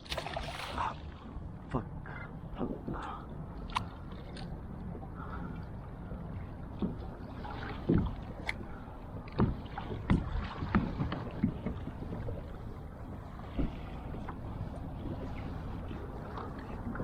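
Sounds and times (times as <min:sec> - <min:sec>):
short knocks and splashes: 0:00.0 - 0:01.0, 0:06.8 - 0:08.6, 0:09.3 - 0:12.3
steady low rumble: 0:00.0 - 0:17.0
water lapping against kayak hull: 0:00.0 - 0:17.0.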